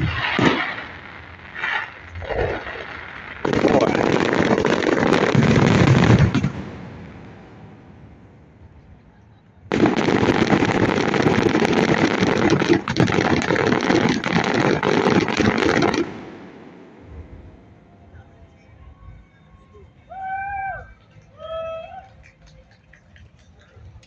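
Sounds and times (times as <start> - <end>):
fireworks crackling bangs: 0.0 - 8.3, 9.7 - 17.6.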